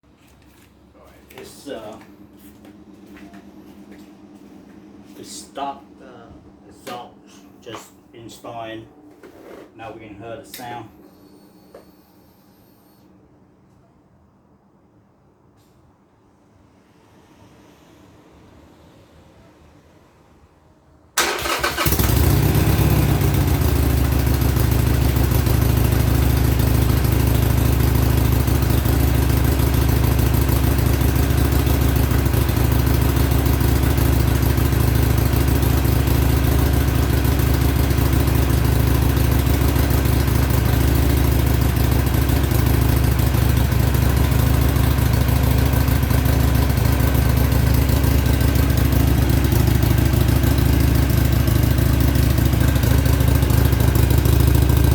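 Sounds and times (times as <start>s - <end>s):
motorcycle engine starting and idling: 21.2s - 54.9s.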